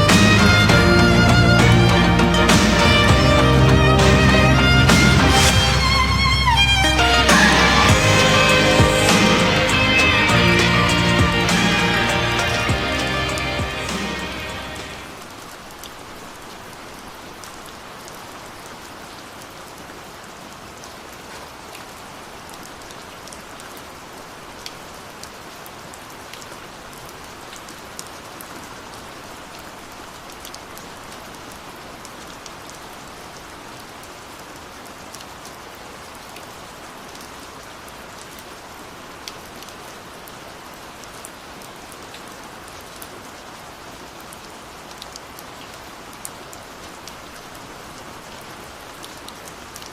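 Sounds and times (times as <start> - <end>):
waterfall rushing: 0.0 - 16.4.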